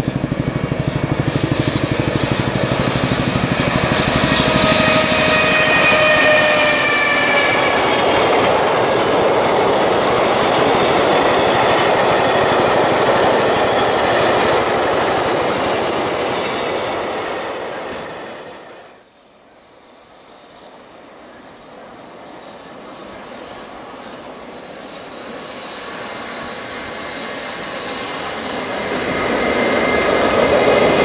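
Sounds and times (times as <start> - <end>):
electric locomotive motor whine: 0.0 - 31.0.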